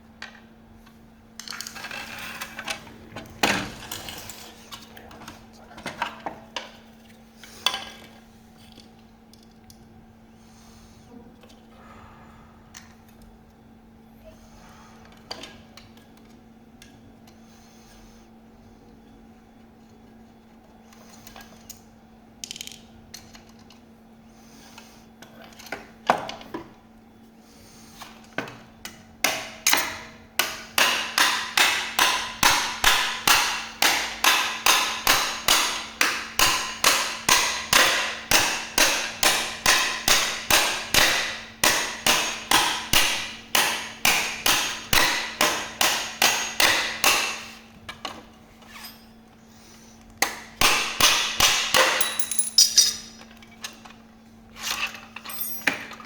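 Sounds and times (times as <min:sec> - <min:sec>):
faint steady hum: 0:00.0 - 0:56.0
hammer striking: 0:29.2 - 0:47.5.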